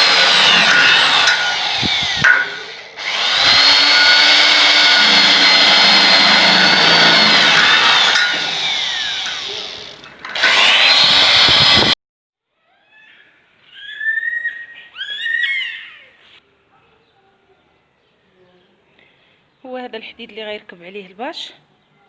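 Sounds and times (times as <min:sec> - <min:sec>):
power tool motor whining: 0:00.0 - 0:12.0
small birds chirping: 0:12.8 - 0:22.0.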